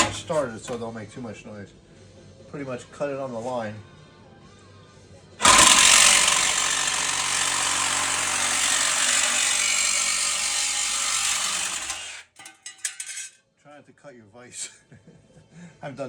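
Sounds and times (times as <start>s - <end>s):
reciprocating saw cutting steel: 0.0s - 0.8s, 5.4s - 13.3s.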